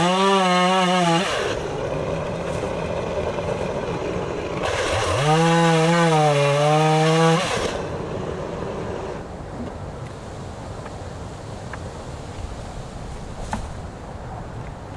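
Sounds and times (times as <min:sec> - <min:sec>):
chainsaw revving: 0:00.0 - 0:09.3.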